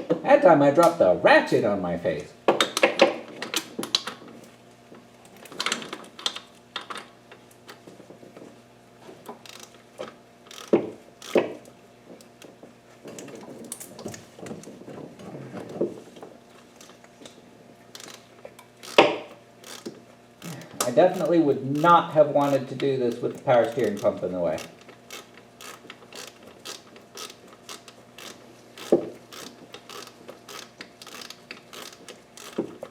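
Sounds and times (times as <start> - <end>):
hand tools and metal parts clinking: 18.8 - 32.9.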